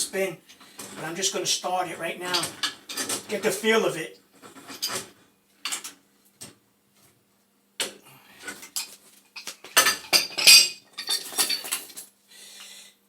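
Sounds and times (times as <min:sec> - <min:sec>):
wrenches clanking on metal pipe: 0:02.2 - 0:03.5, 0:04.4 - 0:05.1, 0:08.5 - 0:12.0.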